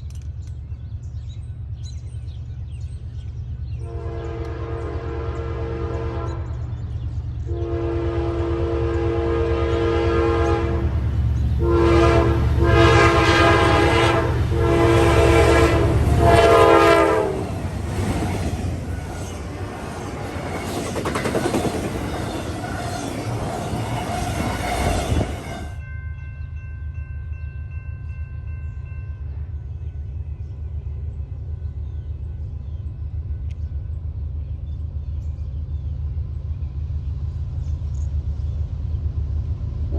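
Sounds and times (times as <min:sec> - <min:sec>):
locomotive engine rumble: 0:00.0 - 0:25.8, 0:27.7 - 0:39.9
train rolling past clattering: 0:00.0 - 0:39.9
locomotive air horn blasts: 0:03.8 - 0:06.6, 0:07.4 - 0:17.6.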